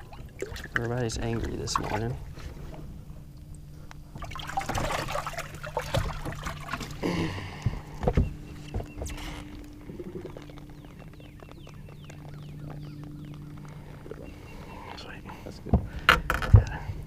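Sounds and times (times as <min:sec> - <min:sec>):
splashy handling noise: 0:00.0 - 0:02.8, 0:04.2 - 0:07.0
low hum: 0:00.0 - 0:17.0.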